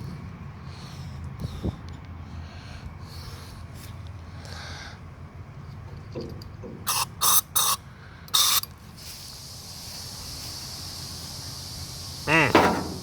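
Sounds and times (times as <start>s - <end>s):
aerosol spray bursts: 8.4s - 13.0s
faint steady hiss: 8.8s - 13.0s.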